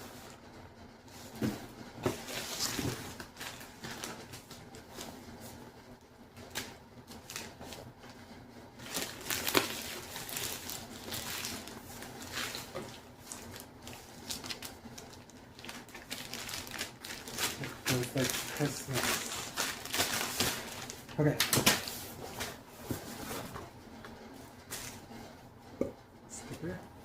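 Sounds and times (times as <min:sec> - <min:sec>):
paper rustling: 0:08.8 - 0:23.7.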